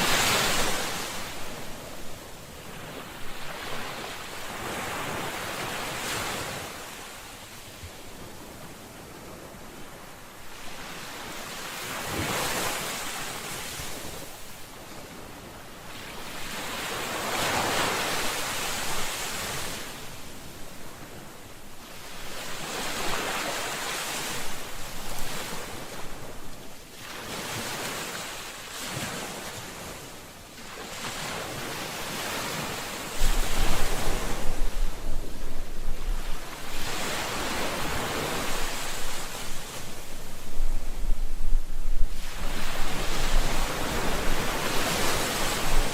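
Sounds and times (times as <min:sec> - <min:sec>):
sea waves breaking on shore: 0:00.0 - 0:45.9
wind buffeting microphone: 0:33.1 - 0:45.9.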